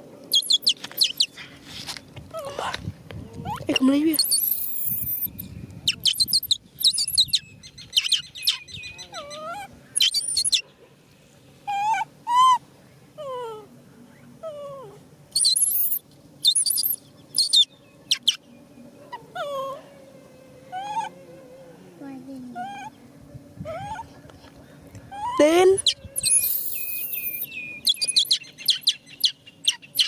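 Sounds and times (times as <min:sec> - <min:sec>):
young monkey screaming: 0:02.4 - 0:02.8, 0:03.4 - 0:05.4, 0:11.7 - 0:12.6, 0:20.7 - 0:21.2, 0:22.6 - 0:23.0, 0:23.7 - 0:24.1, 0:25.1 - 0:28.9
monkey whimpering calls: 0:02.4 - 0:05.4, 0:08.5 - 0:10.6, 0:11.7 - 0:12.6, 0:19.2 - 0:19.8, 0:20.7 - 0:21.2, 0:22.6 - 0:23.0, 0:23.7 - 0:24.1, 0:25.1 - 0:28.4.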